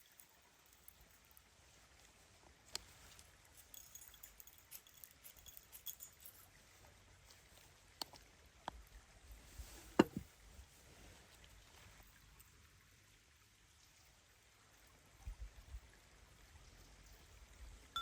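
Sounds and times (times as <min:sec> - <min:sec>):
knock with short ring: 0:10.0 - 0:10.2
sharp clicks and knocks: 0:10.0 - 0:10.2.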